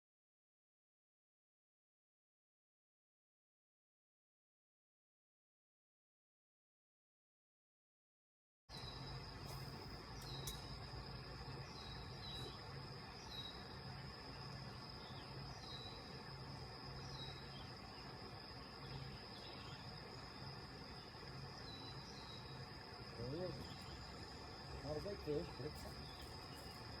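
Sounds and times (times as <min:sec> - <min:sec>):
insects chirring: 0:08.7 - 0:27.0
low outdoor background: 0:08.7 - 0:27.0.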